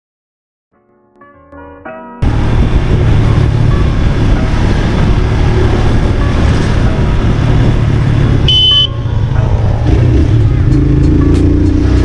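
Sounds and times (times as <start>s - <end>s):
wind buffeting microphone: 2.2s - 11.2s
motorcycle engine rumble: 2.2s - 12.0s.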